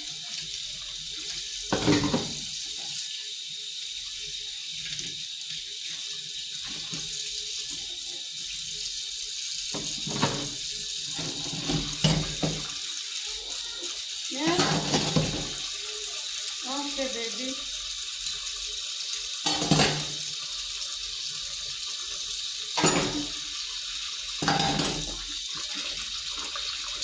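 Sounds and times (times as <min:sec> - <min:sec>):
tap water running into sink: 0:00.0 - 0:27.0
things bumping in sink: 0:01.7 - 0:02.4, 0:09.8 - 0:10.6, 0:14.4 - 0:15.6, 0:19.5 - 0:20.2, 0:22.8 - 0:23.4, 0:24.4 - 0:25.2.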